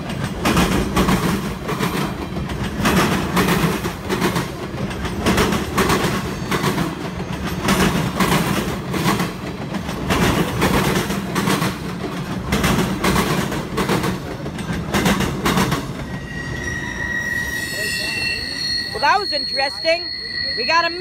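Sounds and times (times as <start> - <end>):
train wheels clacking over rail joints: 0.0 - 16.3
train rumbling: 0.0 - 21.0.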